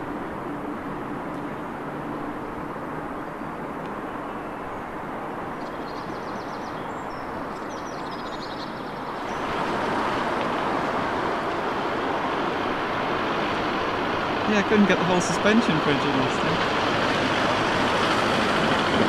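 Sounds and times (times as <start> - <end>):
small birds chirping: 5.6 - 9.5
train rumbling over bridge: 9.0 - 19.0.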